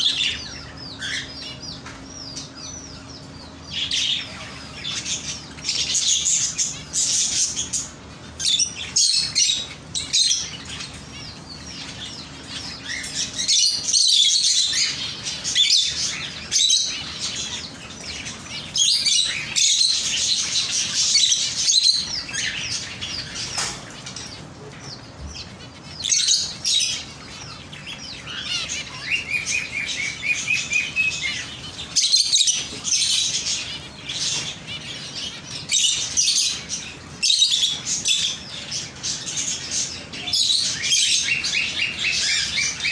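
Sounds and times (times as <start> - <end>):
small birds chirping and twittering: 0.0 - 42.9.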